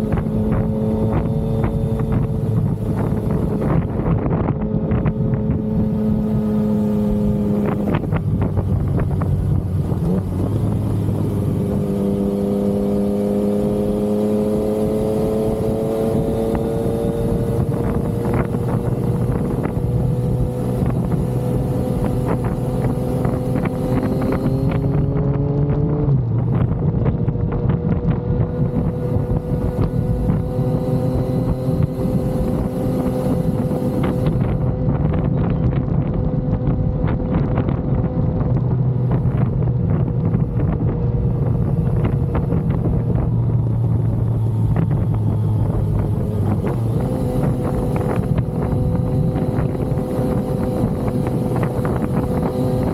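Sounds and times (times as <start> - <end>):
motorcycle engine on the road: 0.0 - 52.9
wind on microphone: 0.0 - 52.9.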